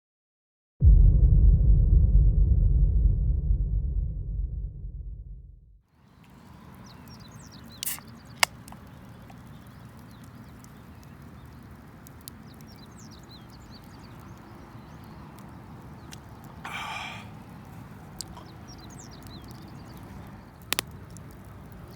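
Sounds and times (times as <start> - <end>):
small birds chirping: 5.9 - 21.9
steady outdoor hiss: 5.9 - 21.9
faint ticks: 17.6 - 21.8.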